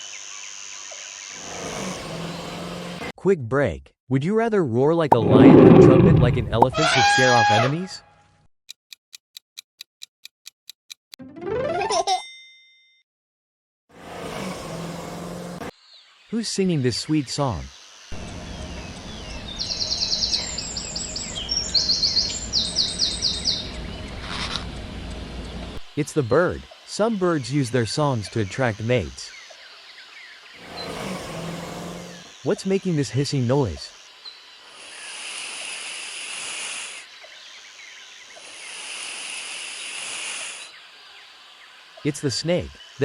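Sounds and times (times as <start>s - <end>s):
snake hissing: 1.4s - 2.9s, 30.6s - 32.5s, 33.2s - 37.2s, 38.2s - 43.0s
songbird singing trills: 18.1s - 25.8s.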